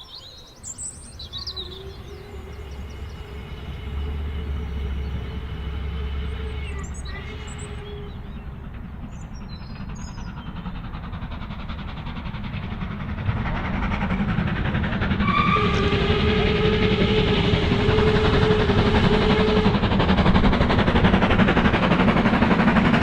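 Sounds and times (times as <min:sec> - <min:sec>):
model steam locomotive running: 0:00.1 - 0:23.0
steam locomotive whistle: 0:01.1 - 0:08.6, 0:15.2 - 0:20.4.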